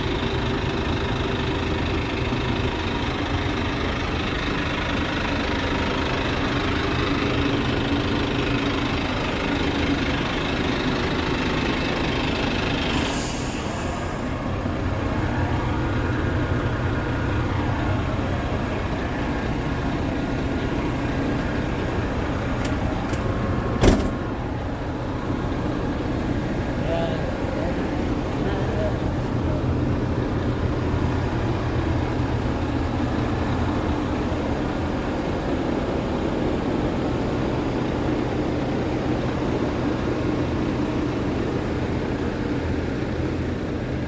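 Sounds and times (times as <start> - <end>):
diesel truck engine idling: 0.0 - 44.0
short hiss: 13.0 - 14.0.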